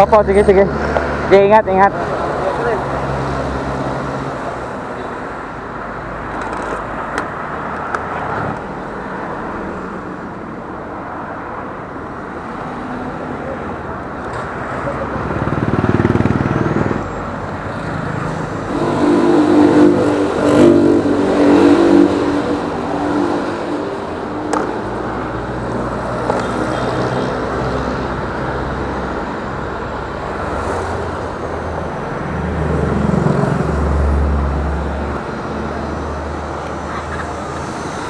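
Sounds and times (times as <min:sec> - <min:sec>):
wind and road noise: 0:00.0 - 0:38.0
motorcycle engine running: 0:15.1 - 0:17.0.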